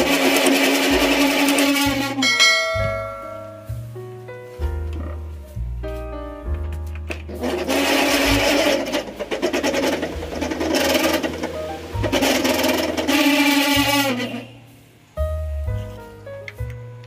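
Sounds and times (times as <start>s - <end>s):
table fan rattling: 0.0s - 3.9s, 6.6s - 14.6s
background music: 0.0s - 17.0s.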